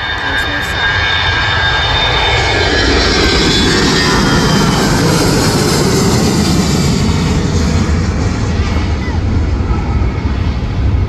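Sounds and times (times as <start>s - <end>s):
airliner engines rushing: 0.0s - 11.0s
faint high engine whine: 0.0s - 11.0s.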